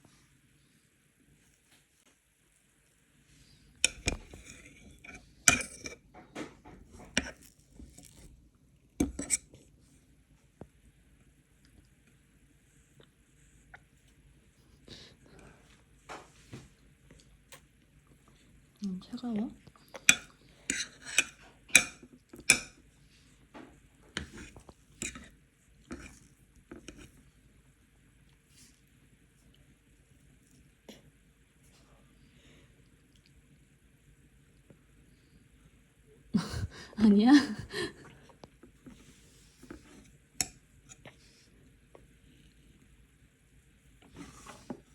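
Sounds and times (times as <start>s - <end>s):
cutlery and dishes clattering: 3.8s - 7.4s, 20.1s - 22.8s.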